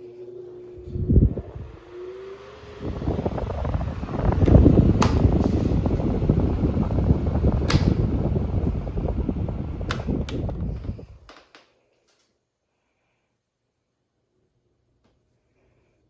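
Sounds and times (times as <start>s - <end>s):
fan wind buffeting microphone: 0.6s - 11.3s.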